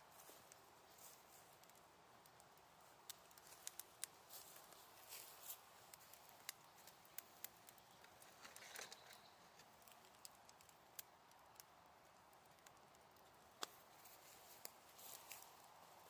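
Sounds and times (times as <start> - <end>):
fire hissing: 0.0 - 8.4
wood fire crackling: 0.0 - 16.0.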